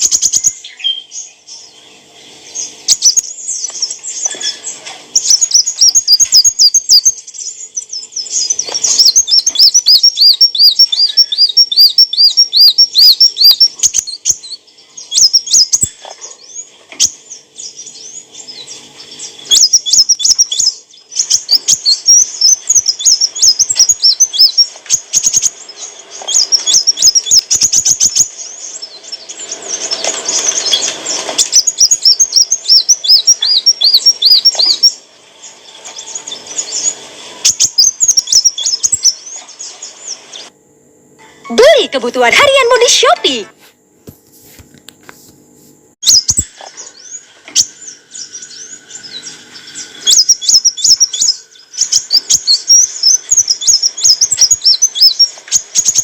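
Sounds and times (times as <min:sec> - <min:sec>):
bird chirping and trilling: 0:00.0 - 0:40.5, 0:41.4 - 0:43.5, 0:46.0 - 0:56.0.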